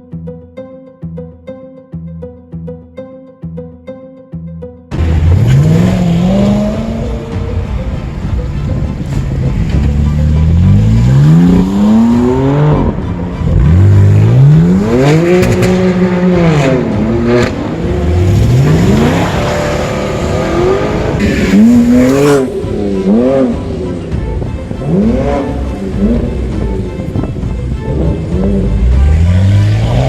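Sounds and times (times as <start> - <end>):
car engine revving: 4.9 - 30.0.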